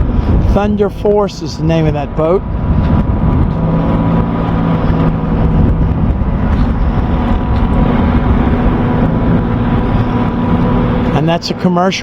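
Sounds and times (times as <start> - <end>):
boat diesel engines droning: 0.0 - 12.0
wind rumbling on microphone: 0.0 - 12.0.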